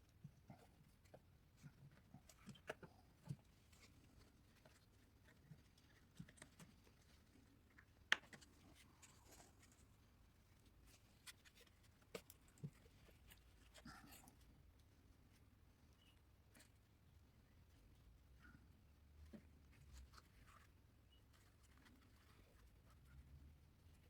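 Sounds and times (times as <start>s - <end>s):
faint clicks and taps: 0.0s - 9.9s, 10.6s - 15.0s.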